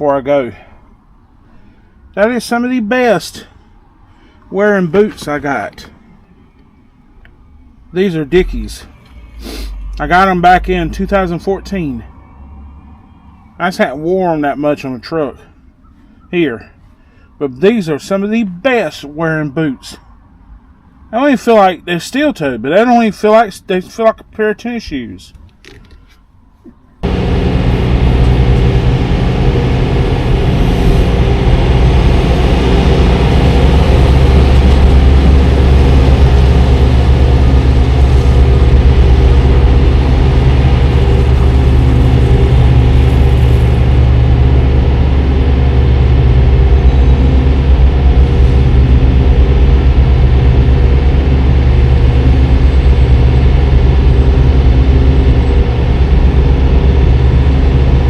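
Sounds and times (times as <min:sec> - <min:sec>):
truck diesel engine running: 0:27.0 - 0:58.0.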